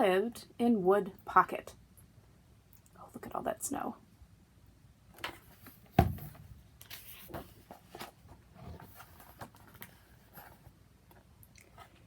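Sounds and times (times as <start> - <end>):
knock on book: 6.0 - 6.4
book pages rustling: 6.8 - 10.8.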